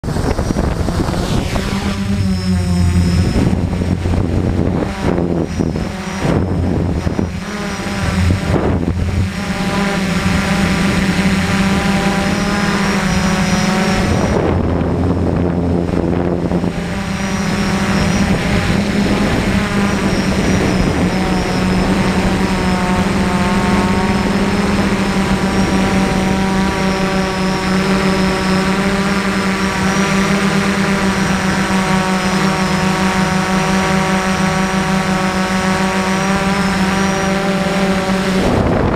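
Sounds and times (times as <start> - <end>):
drone propellers buzzing: 0.0 - 38.9.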